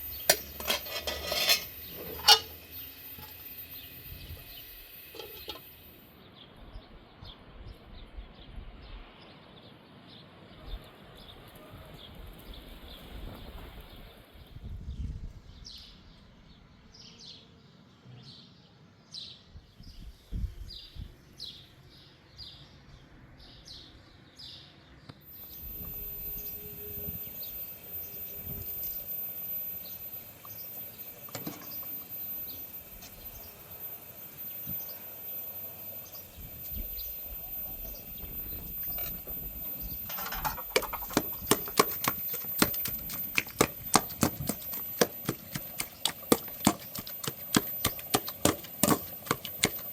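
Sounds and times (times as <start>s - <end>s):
rapid sharp knocks: 40.8s - 49.9s.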